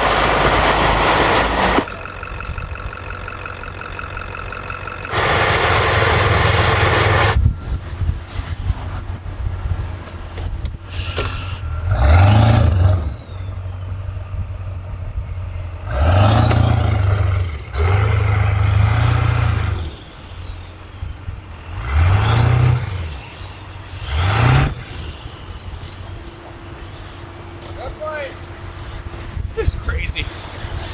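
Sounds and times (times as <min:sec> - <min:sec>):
engine revving hard: 0:00.0 - 0:01.9, 0:05.1 - 0:07.4, 0:10.9 - 0:13.7, 0:15.7 - 0:25.8
engine idling: 0:00.0 - 0:30.9.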